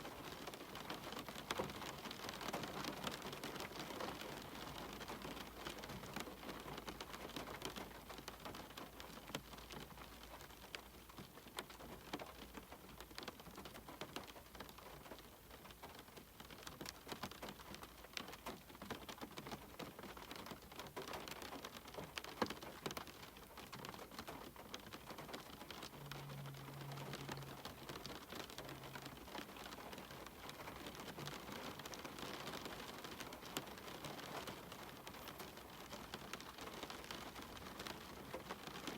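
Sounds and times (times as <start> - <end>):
steady rain hiss: 0.0 - 38.9
raindrops tapping: 0.1 - 38.9.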